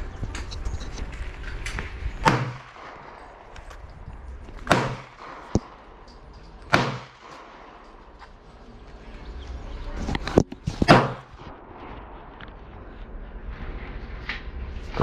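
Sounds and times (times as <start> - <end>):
steady low rumble: 0.0 - 15.0
gunshots with echo: 2.2 - 3.5, 4.6 - 6.1, 6.7 - 8.2.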